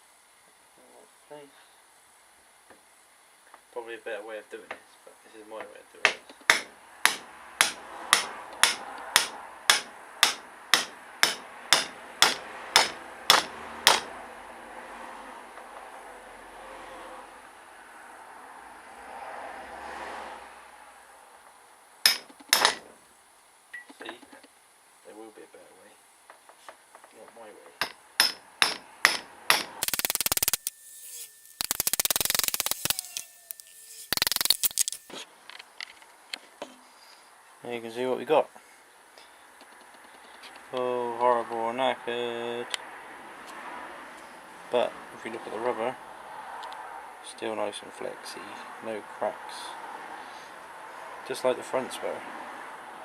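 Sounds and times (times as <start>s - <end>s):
sharp knocks on metal: 6.0s - 14.1s, 22.1s - 22.9s, 27.8s - 29.8s
hammer striking metal: 6.1s - 14.1s, 22.0s - 22.8s, 27.8s - 34.5s
rapid clicking of hand tool: 6.4s - 14.0s, 28.2s - 35.1s.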